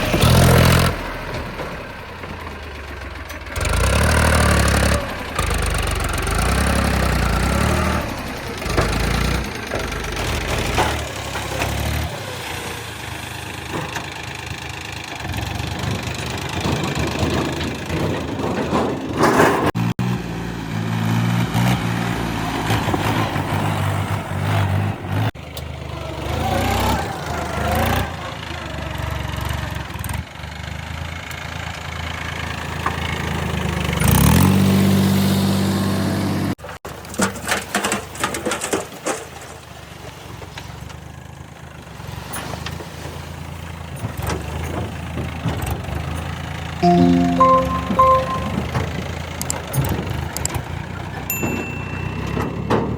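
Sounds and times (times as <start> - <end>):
engine revving: 3.6 - 9.4.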